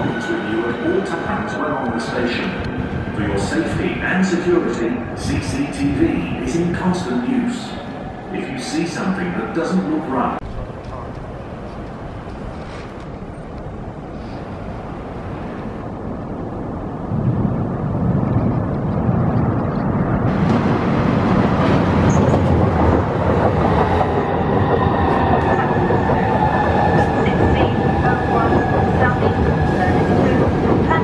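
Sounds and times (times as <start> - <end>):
electric train approaching: 11.2 - 31.0.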